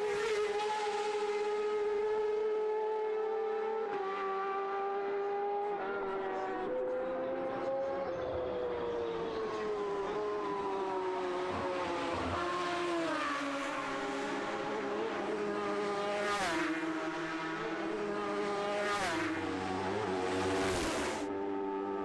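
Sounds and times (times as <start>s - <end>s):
racing motorcycle engines revving: 0.0s - 22.0s
motorcycle passing close: 11.0s - 22.0s.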